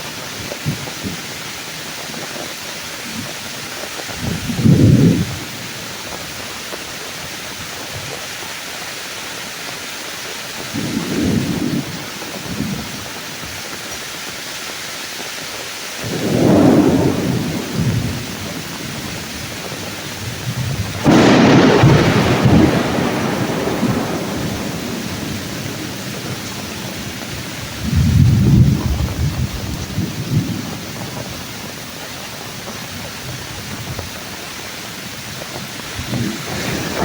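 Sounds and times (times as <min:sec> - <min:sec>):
thunder rumbling: 0:00.0 - 0:06.5, 0:10.6 - 0:13.7, 0:16.0 - 0:37.0
rain pouring: 0:00.0 - 0:37.0
loud thunder crack: 0:16.0 - 0:31.2, 0:36.0 - 0:37.0.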